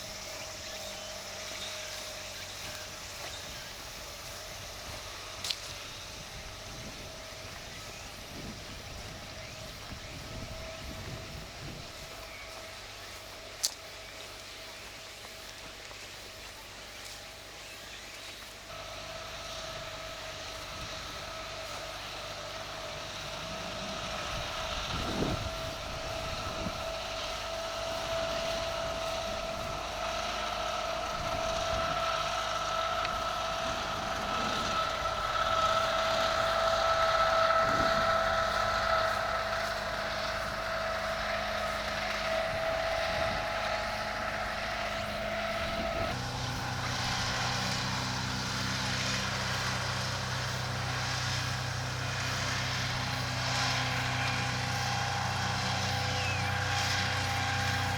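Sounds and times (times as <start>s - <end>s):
engine drone: 0.0s - 57.9s.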